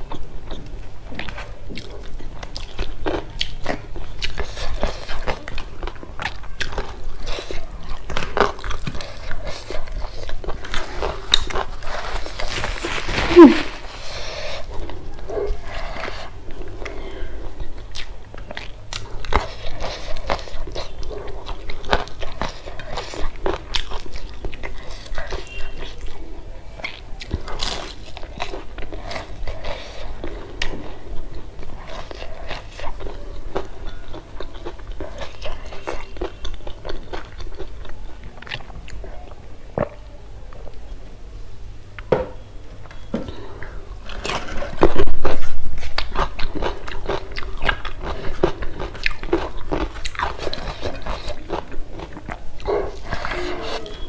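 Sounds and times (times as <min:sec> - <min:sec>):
chewing and crunching: 0:00.0 - 0:40.9, 0:42.8 - 0:54.0.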